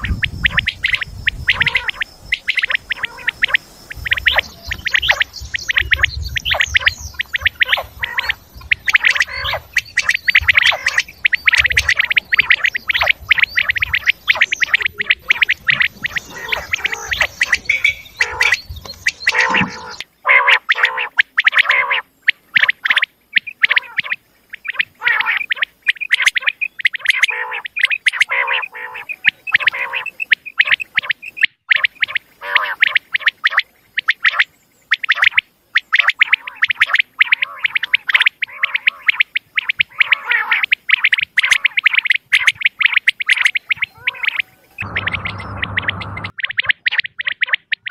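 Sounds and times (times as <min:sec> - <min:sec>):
soft low warbling: 0:00.0 - 0:20.0, 0:43.7 - 0:47.9
quail calling: 0:00.0 - 0:47.9.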